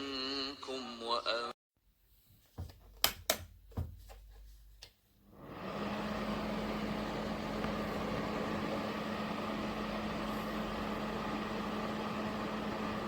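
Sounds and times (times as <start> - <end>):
fan heater blowing air: 5.4 - 13.0
low motor hum: 5.4 - 13.0.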